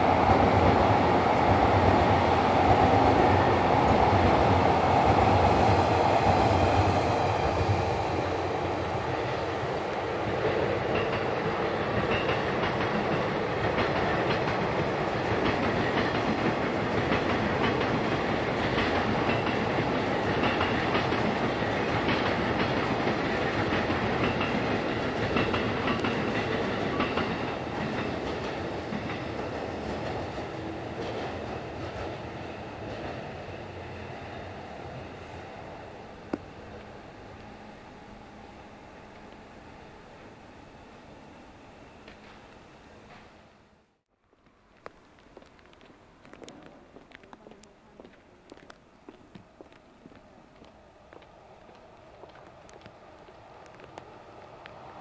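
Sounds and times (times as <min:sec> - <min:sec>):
train wheels clacking over rail joints: 0:10.3 - 0:32.2.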